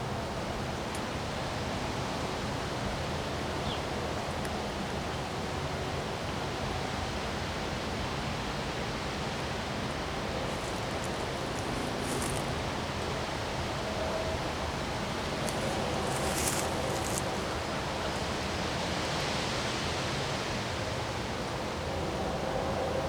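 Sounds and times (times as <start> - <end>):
wind blowing: 10.3 - 20.8.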